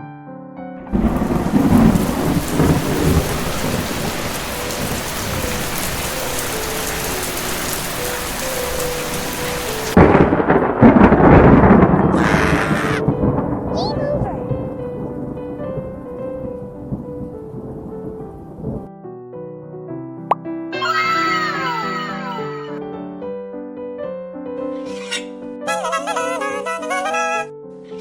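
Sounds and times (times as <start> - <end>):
rain falling steadily: 0.9 - 18.9
thunder rumbling: 0.9 - 18.9.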